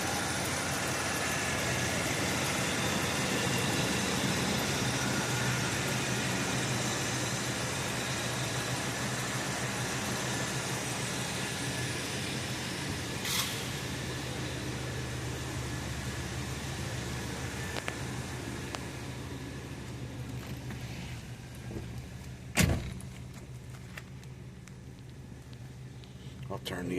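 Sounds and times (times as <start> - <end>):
car engine idling: 0.0 - 26.9
brief hiss: 13.2 - 13.7.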